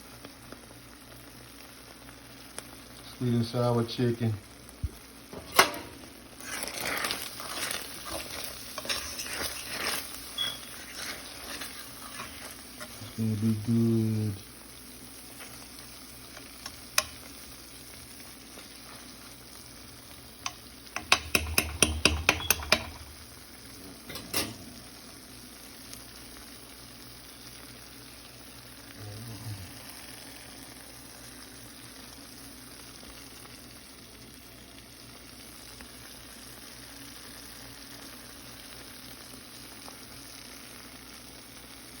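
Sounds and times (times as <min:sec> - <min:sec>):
chicken sizzling in a pan: 0:00.0 - 0:42.0
utensil scraping against pan: 0:05.4 - 0:13.2, 0:20.4 - 0:23.2.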